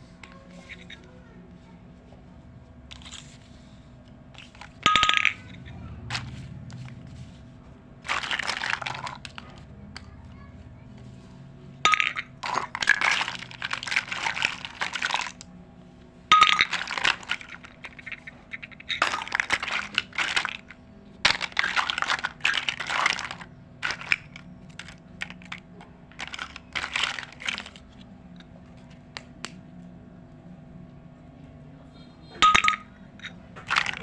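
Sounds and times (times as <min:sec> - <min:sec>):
plastic toy pieces clattering: 0:00.2 - 0:01.2, 0:02.9 - 0:03.7, 0:04.4 - 0:07.4, 0:08.0 - 0:15.5, 0:16.3 - 0:29.6, 0:32.4 - 0:34.0.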